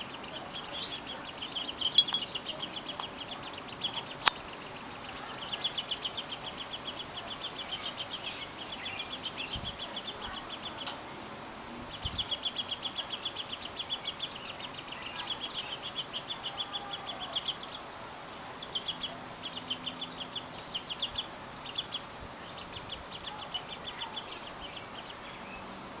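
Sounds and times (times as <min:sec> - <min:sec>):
nestlings chirping: 0:00.0 - 0:11.0, 0:11.8 - 0:26.0.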